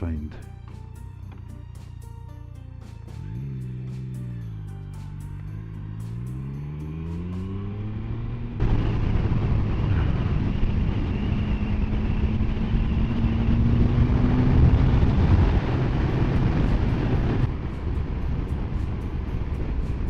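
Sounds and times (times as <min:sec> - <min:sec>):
motorcycle engine cruising: 0:00.0 - 0:20.0
wind rush on microphone: 0:08.6 - 0:20.0.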